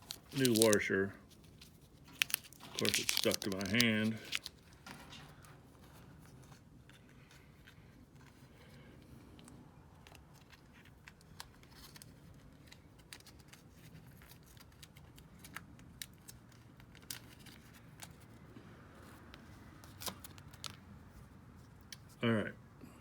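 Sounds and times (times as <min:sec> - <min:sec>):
hands handling small parts: 0:00.0 - 0:08.5.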